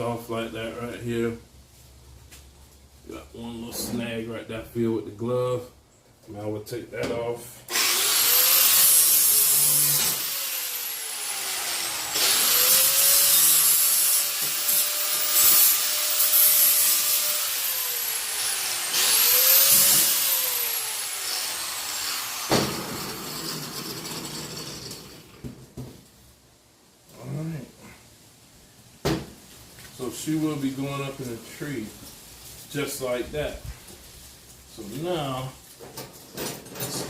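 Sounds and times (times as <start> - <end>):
angle grinder grinding metal: 7.7 - 25.4.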